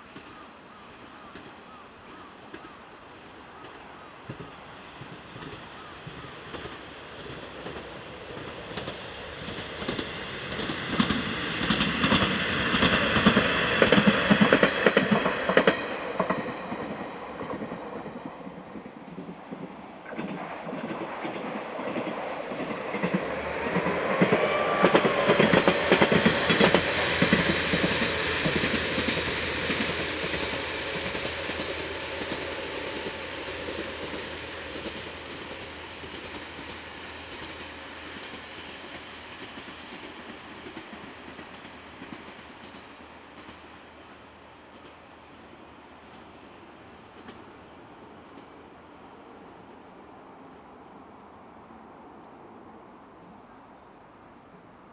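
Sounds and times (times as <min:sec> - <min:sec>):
train whine: 0:00.0 - 0:54.9
train wheels clacking over rail joints: 0:03.5 - 0:46.3.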